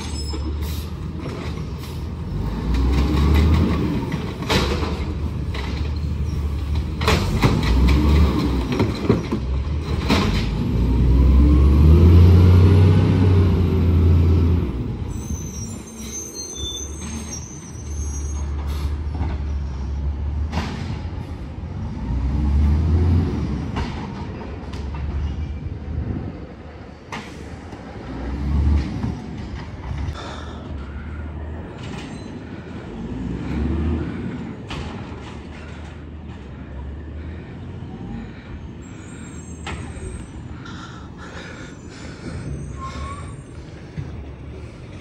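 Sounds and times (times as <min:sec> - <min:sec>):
high squeal: 0:00.0 - 0:00.8, 0:15.1 - 0:18.9, 0:38.6 - 0:40.6, 0:41.7 - 0:44.0
diesel engine revving: 0:00.6 - 0:15.4, 0:18.5 - 0:24.1, 0:27.9 - 0:29.4, 0:32.7 - 0:40.2.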